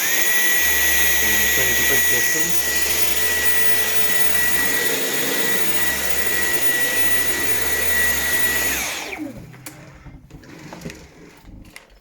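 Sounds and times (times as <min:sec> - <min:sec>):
motor winding down: 0:00.0 - 0:09.3
vacuum cleaner running: 0:00.0 - 0:11.5.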